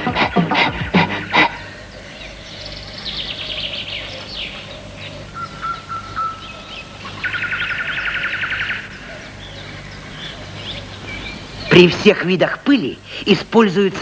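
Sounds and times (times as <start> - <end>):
bird chirping and trilling: 1.6 - 12.0.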